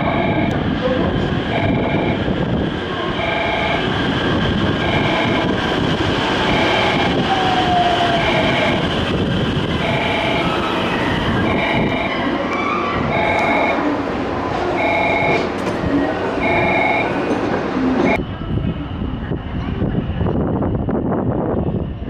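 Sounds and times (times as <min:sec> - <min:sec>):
electric train rumbling: 0:00.0 - 0:22.0
falling whine: 0:01.5 - 0:15.6.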